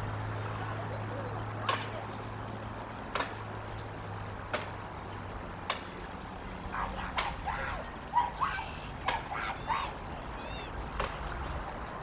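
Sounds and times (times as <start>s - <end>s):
bird chirping: 9.5s - 11.5s.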